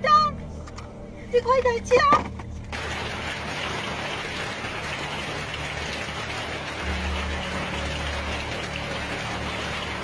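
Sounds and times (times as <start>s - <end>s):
heavy rain pouring: 2.7s - 10.0s.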